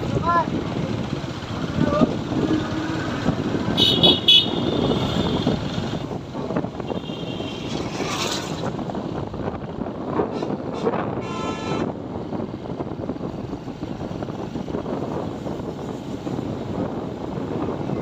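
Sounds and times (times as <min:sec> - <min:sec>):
motorcycle engine: 0:00.0 - 0:09.0
road noise: 0:00.0 - 0:18.0
vehicle horn beeping: 0:03.8 - 0:05.6, 0:06.8 - 0:07.7, 0:10.4 - 0:11.9.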